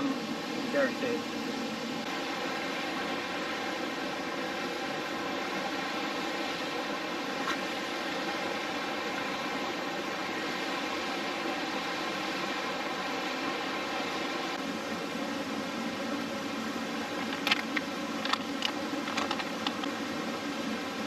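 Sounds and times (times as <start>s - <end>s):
steady rushing background: 17.0s - 19.9s.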